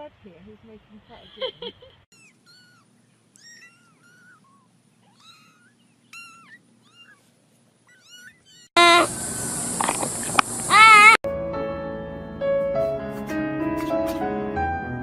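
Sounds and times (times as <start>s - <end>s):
kitten mewing: 2.1s - 9.1s, 10.7s - 11.2s.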